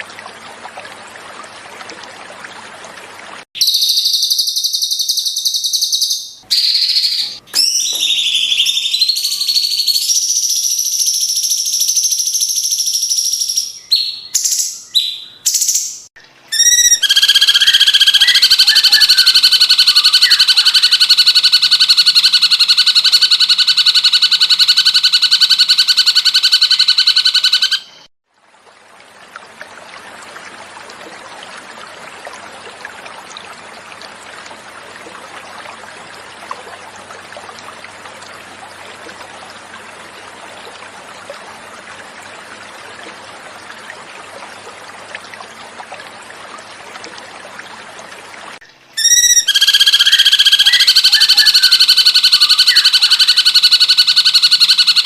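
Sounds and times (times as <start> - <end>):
water trickling: 0.0 - 23.0, 28.3 - 55.0
recorded birdsong: 3.6 - 28.1, 48.6 - 55.0.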